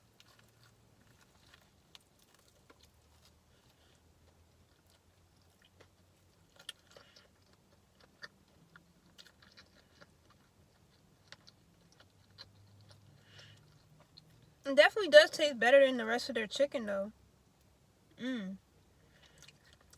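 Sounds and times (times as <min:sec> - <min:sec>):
chewing crispy food: 0:00.0 - 0:14.6, 0:18.7 - 0:19.9
faint steady low hum: 0:00.0 - 0:19.9.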